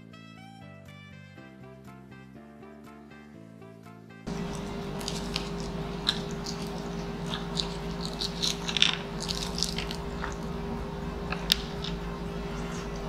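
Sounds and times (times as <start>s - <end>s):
small crackles and clicks: 4.3s - 10.5s
close chewing: 4.3s - 13.0s
steady low hum: 4.3s - 13.0s.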